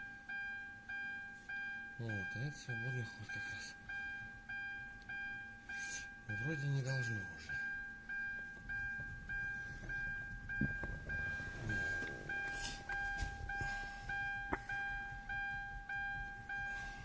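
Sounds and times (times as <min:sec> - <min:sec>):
car warning chime: 0:00.0 - 0:17.0.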